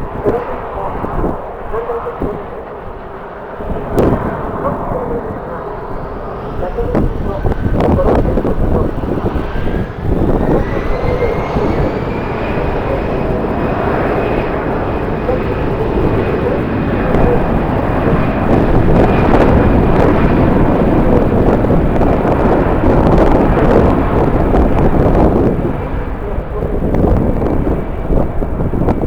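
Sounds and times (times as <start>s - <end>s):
jet engines whining: 0.0s - 29.0s
wind buffeting microphone: 0.0s - 29.0s.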